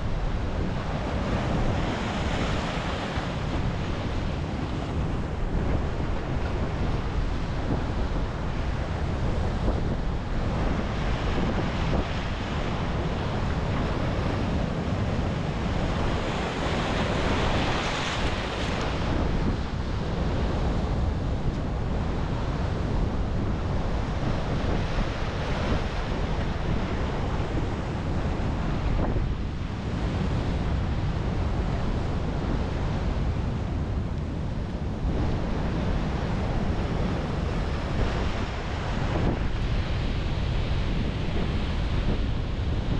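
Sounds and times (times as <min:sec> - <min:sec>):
surf breaking on beach: 0:00.0 - 0:33.8
wind buffeting microphone: 0:00.0 - 0:42.9.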